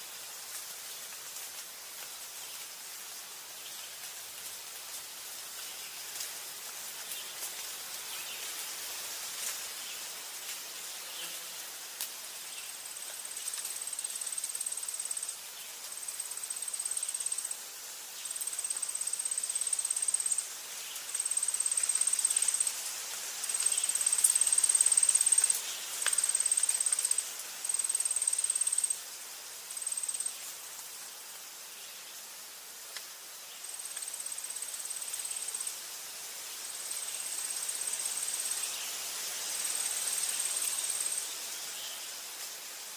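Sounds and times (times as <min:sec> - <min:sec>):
forest ambience hiss: 0:00.0 - 0:42.9
insect trilling: 0:12.9 - 0:15.4, 0:16.1 - 0:17.6, 0:18.2 - 0:20.5, 0:21.1 - 0:22.8, 0:23.4 - 0:29.1, 0:29.7 - 0:30.4, 0:33.6 - 0:35.7, 0:39.6 - 0:42.1
faint ticks: 0:21.0 - 0:29.0, 0:32.9 - 0:33.1, 0:33.8 - 0:35.6.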